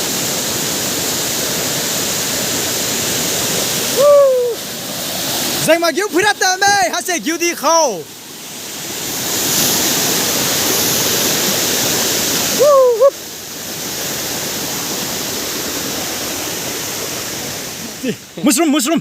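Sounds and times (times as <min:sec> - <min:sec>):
waterfall rushing: 0:00.0 - 0:19.0
person calling: 0:03.9 - 0:04.6, 0:12.5 - 0:13.2.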